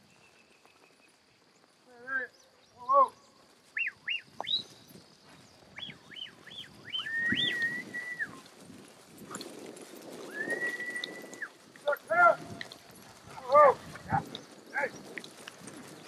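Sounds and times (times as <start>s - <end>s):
horse movement: 0.0s - 16.0s
whistle chirps: 3.7s - 4.9s, 5.8s - 8.4s, 10.3s - 11.5s
long steady whistle note: 6.2s - 8.4s, 10.3s - 11.5s.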